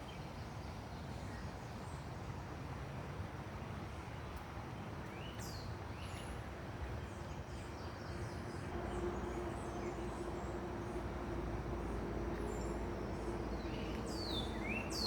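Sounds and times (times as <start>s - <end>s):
steady background hiss: 8.5s - 15.0s
low rumble: 8.6s - 15.0s
steady low hum: 8.6s - 15.0s.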